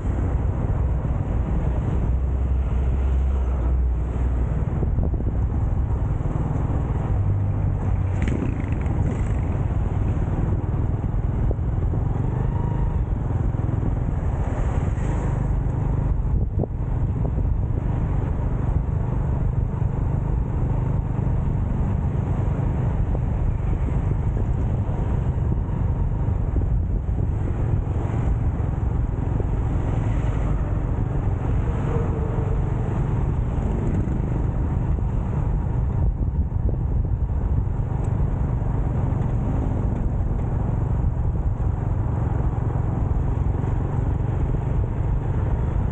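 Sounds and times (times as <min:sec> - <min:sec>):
road noise: 0:00.0 - 0:45.9
wind buffeting microphone: 0:00.0 - 0:45.9
motorcycle engine: 0:07.0 - 0:14.7.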